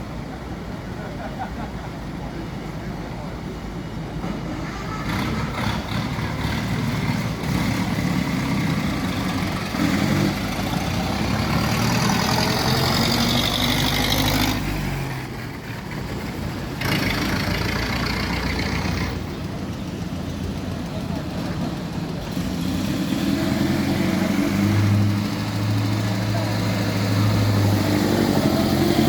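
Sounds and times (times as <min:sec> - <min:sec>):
vehicle engine humming: 0:00.0 - 0:29.0.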